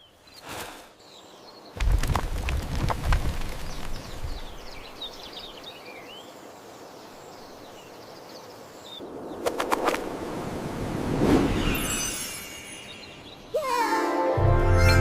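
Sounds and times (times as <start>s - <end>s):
birds chirping: 0.0s - 2.2s, 3.4s - 9.6s, 11.6s - 13.9s
steady outdoor hiss: 0.0s - 14.4s.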